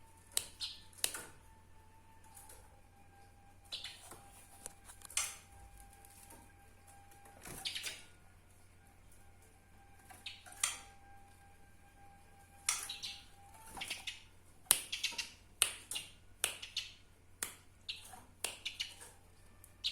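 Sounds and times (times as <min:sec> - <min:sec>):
sparrow chirping: 0:00.4 - 0:01.0, 0:03.6 - 0:04.1, 0:07.6 - 0:08.0, 0:10.2 - 0:10.8, 0:12.6 - 0:17.0, 0:17.8 - 0:19.0.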